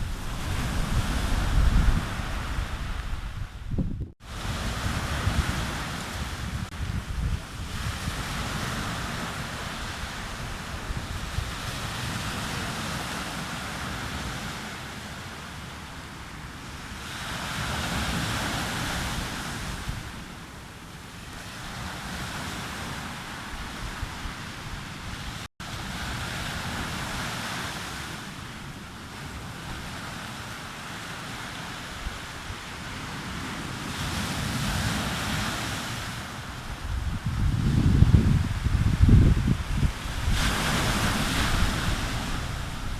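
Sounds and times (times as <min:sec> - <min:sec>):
wind rumbling on microphone: 0:00.0 - 0:14.6, 0:21.3 - 0:28.1, 0:31.8 - 0:42.9
sea waves breaking on beach: 0:00.0 - 0:42.9.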